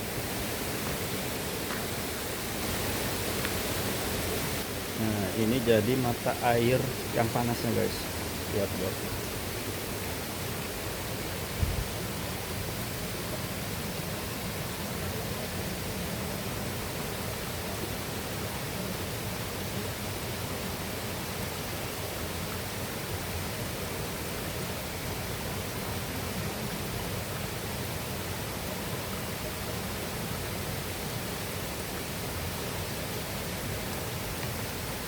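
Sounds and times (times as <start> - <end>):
river and waterfall rushing: 0.0 - 35.0.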